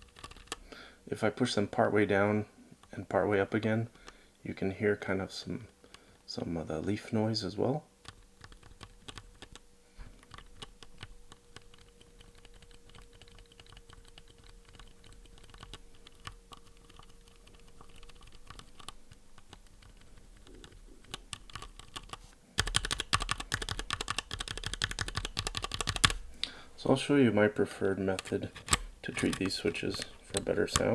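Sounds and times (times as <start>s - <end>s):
rapid loud keypresses: 8.0s - 9.6s, 10.2s - 26.6s, 28.0s - 30.9s.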